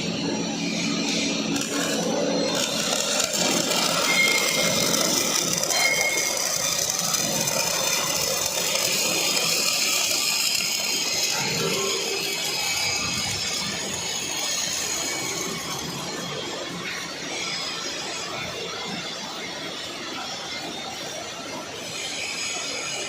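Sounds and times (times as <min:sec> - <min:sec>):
welding arc crackling hiss: 0:00.5 - 0:16.7.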